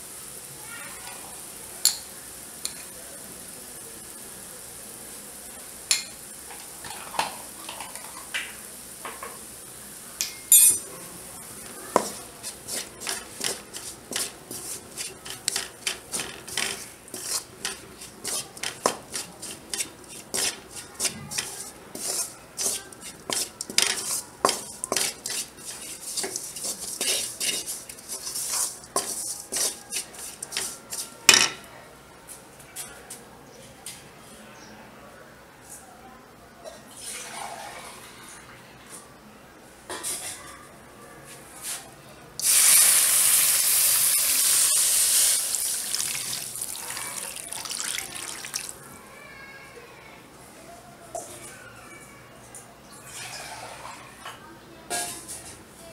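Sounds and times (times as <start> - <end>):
spatula knocking on pan: 11.9 - 12.2, 12.8 - 28.3
spatula scraping metal pan: 12.0 - 31.1.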